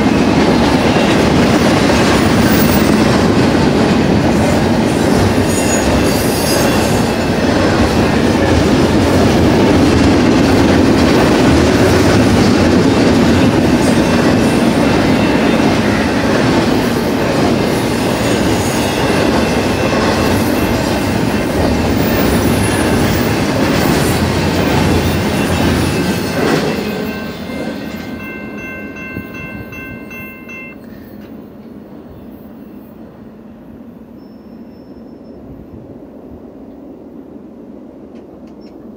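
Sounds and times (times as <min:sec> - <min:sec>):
freight train wheels on rails: 0:00.0 - 0:38.9
crossing bell dinging: 0:18.3 - 0:31.3.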